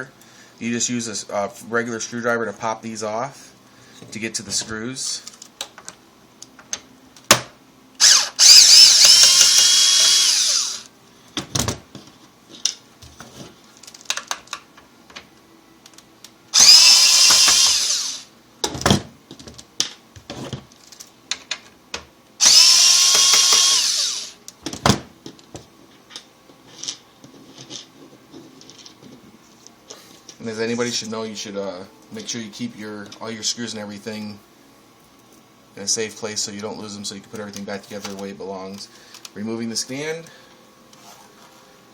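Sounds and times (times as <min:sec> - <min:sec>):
electric screw gun whining: 0:08.0 - 0:10.9, 0:16.6 - 0:18.3, 0:22.4 - 0:24.4.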